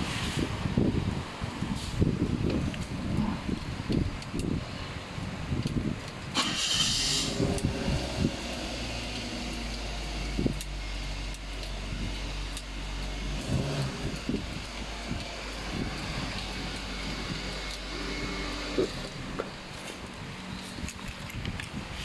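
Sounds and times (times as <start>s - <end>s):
car engine starter cranking: 6.3s - 19.8s
car engine idling: 6.3s - 20.7s.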